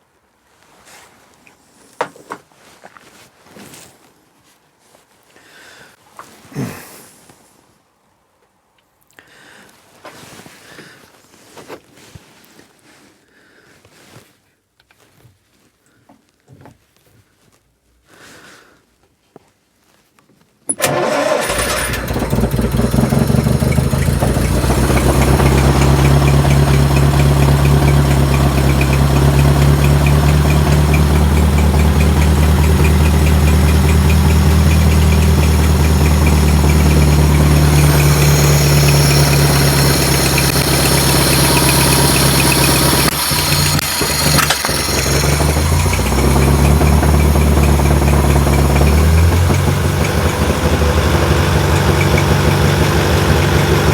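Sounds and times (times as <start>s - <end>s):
car engine running and stumbling: 20.8s - 53.9s.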